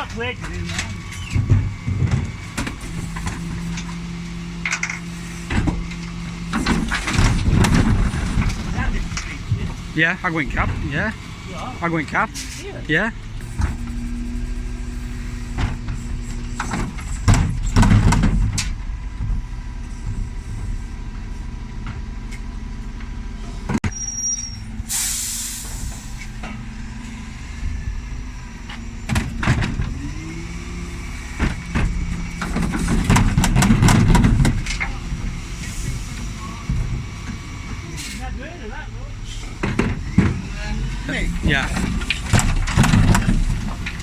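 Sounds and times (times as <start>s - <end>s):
lorry engine running: 0.0s - 23.8s, 24.4s - 44.0s
air brakes hiss: 24.0s - 26.3s.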